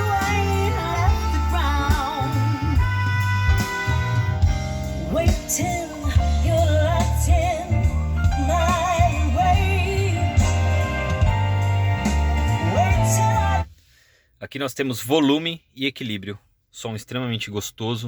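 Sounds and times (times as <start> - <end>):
person singing with vibrato: 0.0 - 13.7
song with heavy bass: 0.0 - 13.7.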